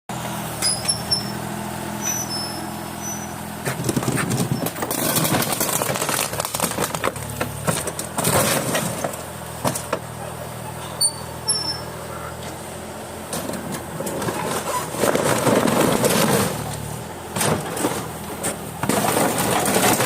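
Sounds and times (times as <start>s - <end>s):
excavator diesel engine running: 0.1s - 20.0s
metal and plastic crunching: 3.6s - 10.1s, 13.3s - 20.0s.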